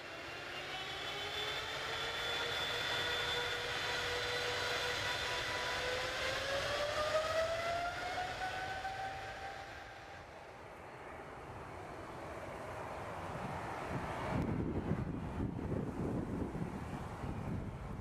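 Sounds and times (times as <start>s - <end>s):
jet engines rising whine: 0.0s - 18.0s
jet engine rumble: 1.7s - 18.0s.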